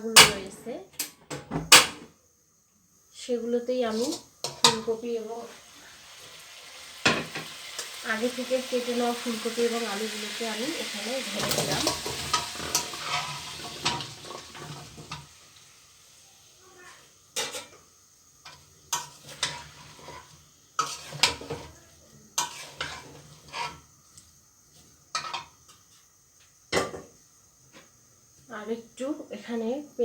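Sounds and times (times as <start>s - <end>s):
vegetables sizzling in hot oil: 3.2s - 30.0s
spatula scraping a pan: 3.9s - 6.0s, 11.2s - 15.4s, 17.4s - 21.8s, 22.4s - 26.0s.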